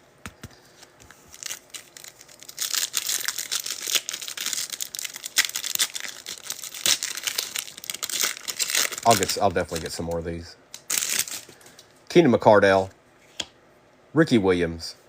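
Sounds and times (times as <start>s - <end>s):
wrapper crinkling and rustling: 1.1s - 10.2s, 10.8s - 11.7s.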